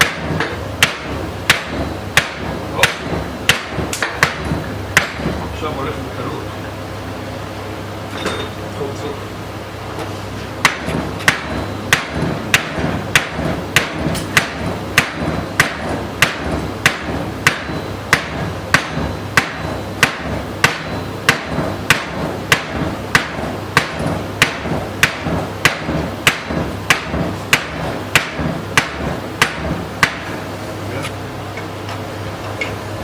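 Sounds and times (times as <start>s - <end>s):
hammer striking metal: 0.0s - 5.4s, 10.6s - 30.4s.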